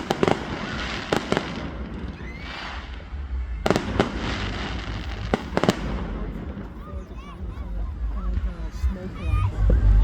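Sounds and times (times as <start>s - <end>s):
fireworks sharp bangs: 0.0s - 7.6s
fireworks crackling: 0.0s - 9.9s.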